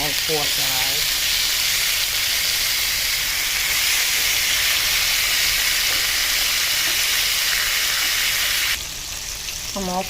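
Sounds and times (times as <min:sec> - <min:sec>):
meat sizzling in hot oil: 0:00.0 - 0:10.0.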